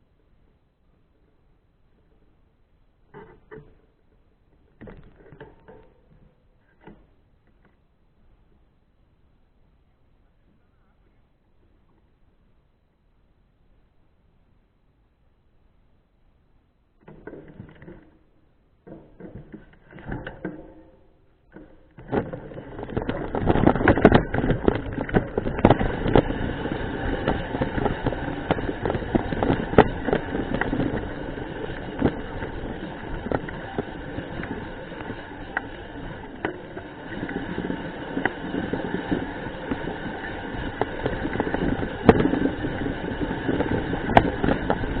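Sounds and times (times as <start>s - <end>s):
bike frame and chain clicking: 17.0s - 45.0s
mountain bike tyres on dirt trail: 17.0s - 45.0s.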